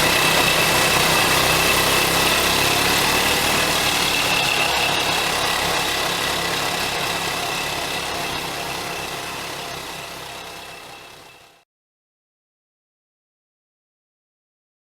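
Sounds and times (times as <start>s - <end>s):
quad bike engine running: 0.0s - 11.6s.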